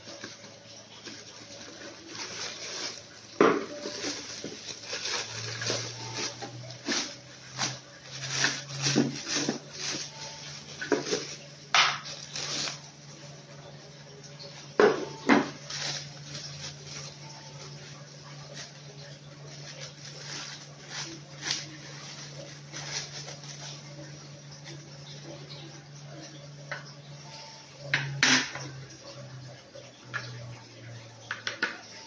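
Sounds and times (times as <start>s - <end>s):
low steady hum: 0.0s - 32.0s
dishes clattering: 3.4s - 4.6s.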